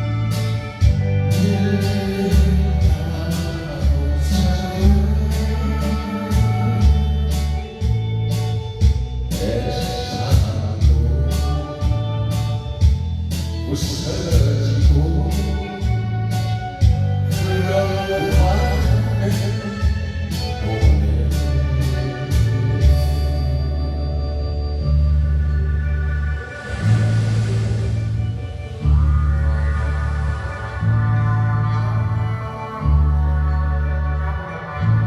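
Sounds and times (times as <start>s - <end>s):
heavy steady bass beat: 0.0s - 35.0s
person singing a melody: 1.2s - 8.0s, 9.3s - 12.7s, 13.6s - 16.6s, 17.2s - 24.0s.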